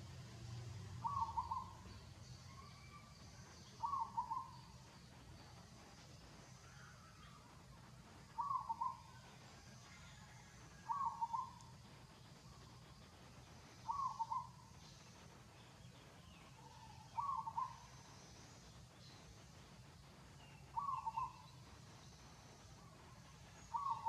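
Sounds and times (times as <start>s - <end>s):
faint low hum: 0.0s - 24.0s
bird calling: 1.0s - 4.8s, 8.3s - 9.4s, 10.8s - 11.7s, 13.8s - 14.8s, 16.3s - 18.3s, 20.6s - 22.2s, 23.6s - 24.0s.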